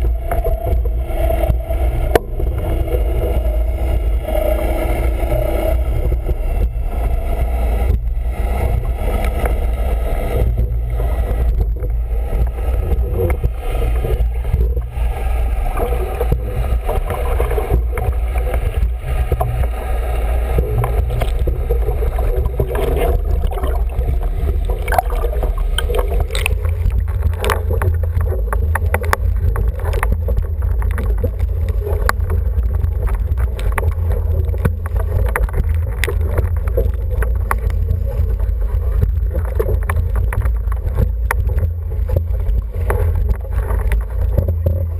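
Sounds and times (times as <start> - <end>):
water rushing along boat hull: 0.0 - 44.9
wind buffeting microphone: 0.0 - 44.9.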